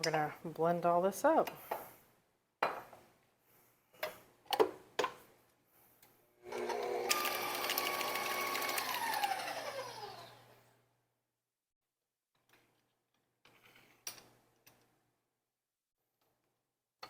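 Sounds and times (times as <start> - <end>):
stand mixer motor whining: 6.5 - 10.4.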